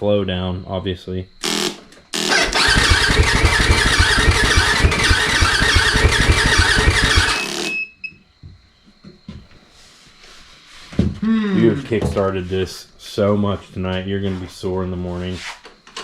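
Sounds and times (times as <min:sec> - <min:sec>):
motorcycle engine running loud: 0:02.5 - 0:07.4.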